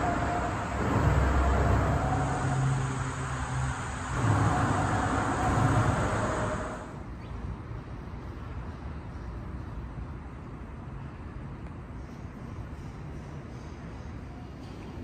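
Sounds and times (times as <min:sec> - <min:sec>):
motor vehicle passing: 0:00.0 - 0:07.0.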